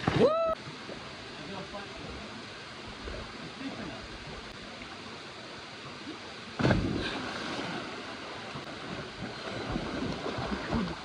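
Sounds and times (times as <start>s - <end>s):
loud thump: 6.6s - 7.2s.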